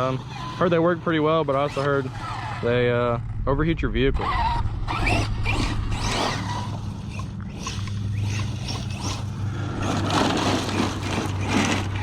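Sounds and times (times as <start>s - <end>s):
rc truck motor whine: 0.0s - 3.4s, 4.1s - 12.0s
steady low hum: 0.0s - 12.0s
tyres scrabbling on grass and rocks: 7.6s - 12.0s.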